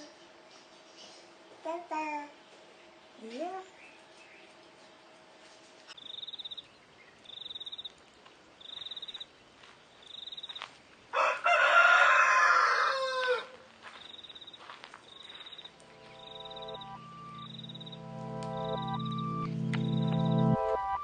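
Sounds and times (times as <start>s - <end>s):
rooster crowing: 11.1s - 13.7s
music: 15.8s - 21.0s
short high pulsed chirp: 15.8s - 21.0s.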